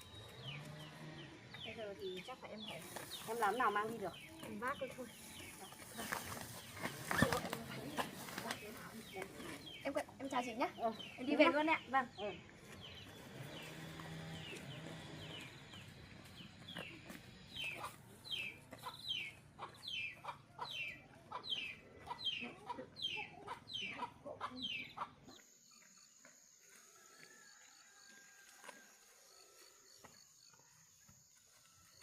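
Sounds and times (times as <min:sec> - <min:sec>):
chickens clucking: 0:16.4 - 0:25.5.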